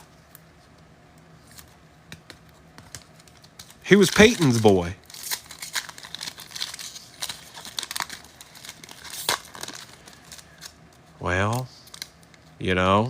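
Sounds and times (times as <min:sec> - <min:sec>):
wrapper crinkling and rustling: 0:02.8 - 0:12.5.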